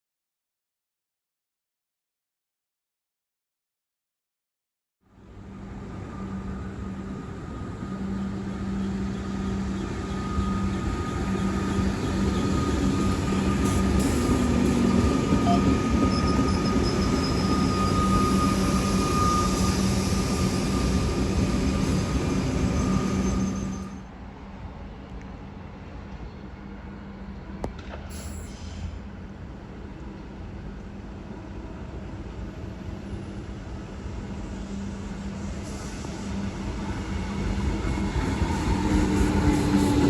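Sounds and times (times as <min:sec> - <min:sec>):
passenger train running: 0:05.1 - 0:40.0
higher whine: 0:05.7 - 0:24.0.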